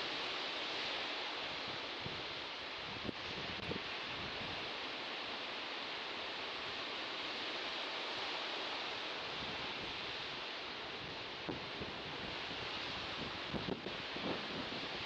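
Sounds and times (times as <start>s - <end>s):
sea surf washing: 0.0s - 15.0s.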